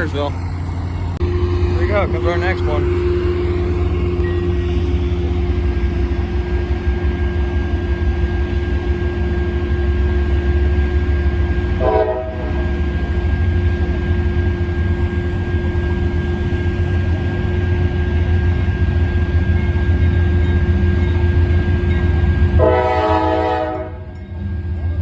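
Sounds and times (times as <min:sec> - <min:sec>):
train rumbling past: 0:00.0 - 0:25.0
locomotive horn: 0:01.2 - 0:07.7, 0:09.4 - 0:13.0, 0:22.5 - 0:24.2.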